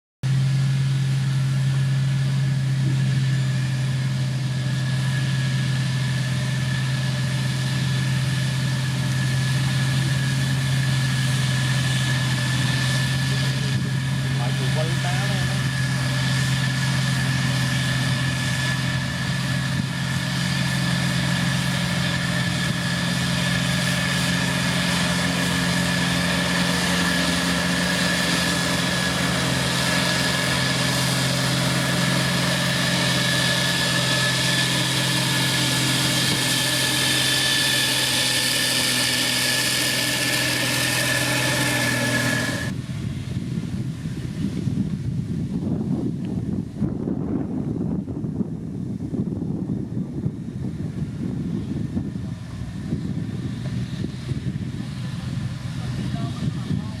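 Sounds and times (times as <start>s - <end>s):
diesel engine running: 0.2s - 57.0s
high whine: 0.2s - 57.0s
wind noise on microphone: 11.9s - 23.8s, 42.7s - 57.0s.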